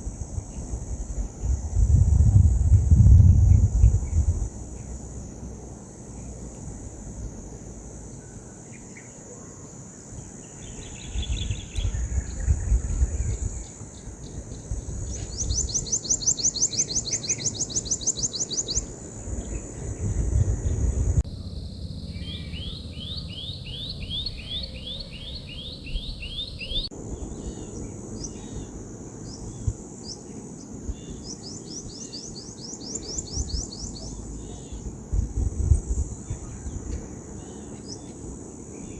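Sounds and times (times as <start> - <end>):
wind rumbling on microphone: 0.0 - 8.2, 10.2 - 38.9
high insect drone: 0.0 - 38.9
birds chirping rapidly: 10.2 - 38.9.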